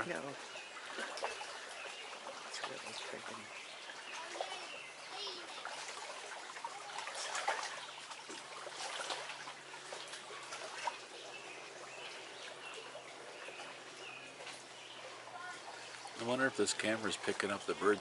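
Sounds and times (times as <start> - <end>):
lake water lapping on shore: 0.0 - 18.0
small birds chirping: 0.0 - 18.0.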